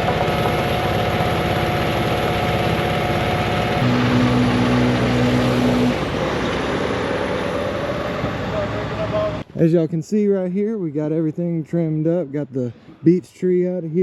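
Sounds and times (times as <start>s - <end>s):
strong low hum: 0.0s - 8.6s
engine running: 0.0s - 9.5s.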